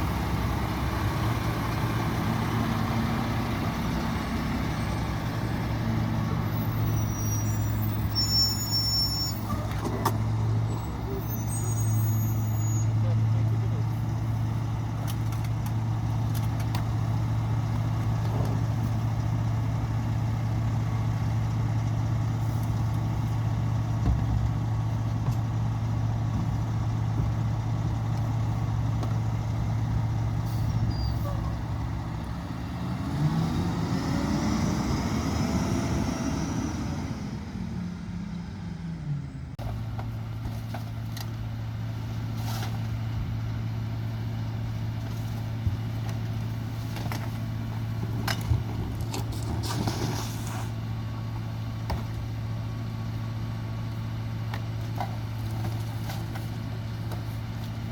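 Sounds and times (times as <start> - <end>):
diesel engine idling and revving: 0.0 - 57.9
packer hydraulics: 46.6 - 51.0.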